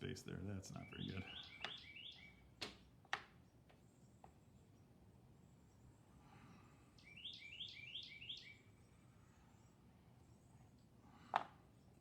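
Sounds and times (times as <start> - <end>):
songbird singing faintly: 0.7 - 2.4, 7.0 - 8.7.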